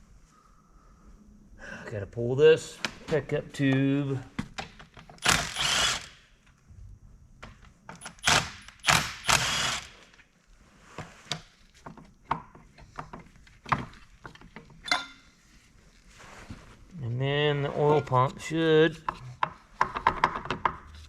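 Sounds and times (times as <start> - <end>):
rasping bursts: 5.2 - 6.2, 8.1 - 10.1
tools and engine parts clanking: 12.0 - 15.4.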